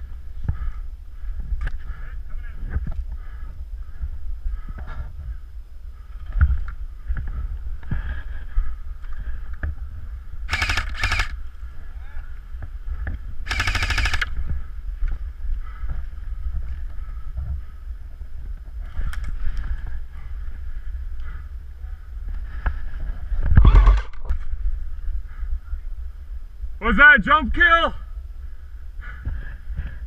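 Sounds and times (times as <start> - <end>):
steady low rumble: 0.0 - 27.0, 28.0 - 30.0
airsoft gun firing bursts: 10.5 - 11.4, 13.5 - 14.3.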